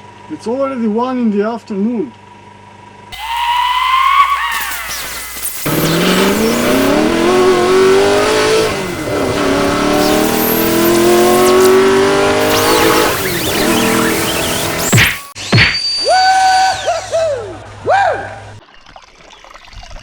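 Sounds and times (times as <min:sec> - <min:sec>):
vehicle engine accelerating: 0:03.6 - 0:15.4.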